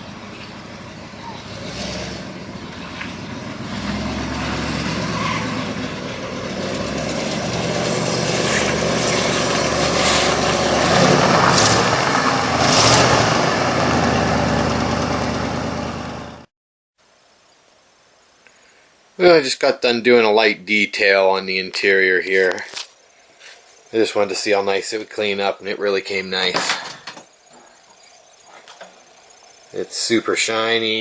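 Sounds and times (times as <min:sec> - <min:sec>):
car engine running: 0:00.0 - 0:16.5
road and wind noise: 0:00.0 - 0:16.5, 0:26.6 - 0:29.8.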